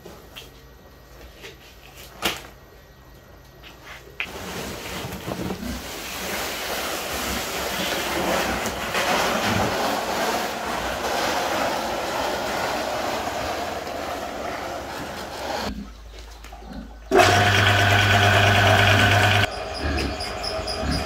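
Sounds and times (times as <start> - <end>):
sack dragged across concrete: 4.3 - 15.7.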